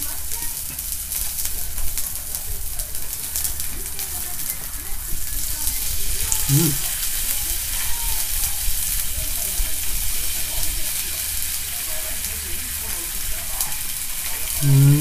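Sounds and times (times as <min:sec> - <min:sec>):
food sizzling on hot plate: 0:00.0 - 0:15.0
short voice sound: 0:06.4 - 0:06.9, 0:14.6 - 0:15.0.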